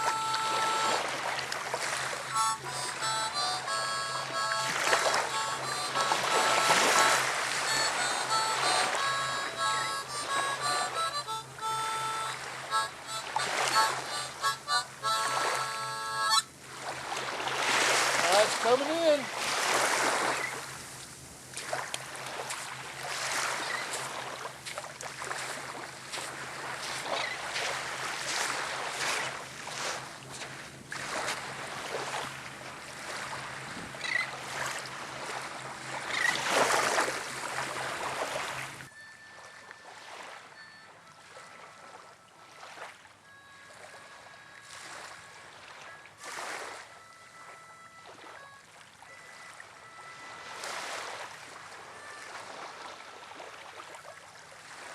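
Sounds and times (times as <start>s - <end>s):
water noise: 0.0s - 54.9s
low steady hum: 20.1s - 39.9s.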